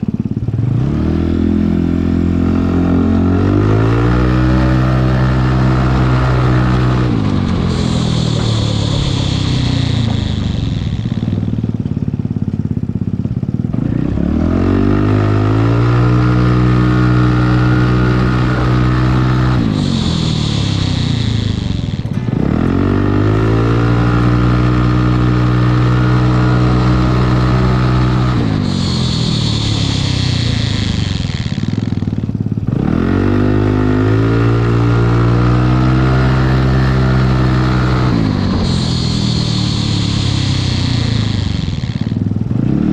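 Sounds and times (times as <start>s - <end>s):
scooter engine: 0.0s - 42.9s
hiss: 27.3s - 31.9s, 37.0s - 42.2s.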